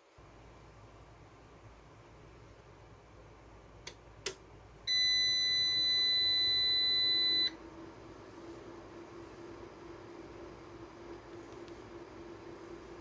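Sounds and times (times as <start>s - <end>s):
electronic buzzer beep: 4.9s - 7.6s.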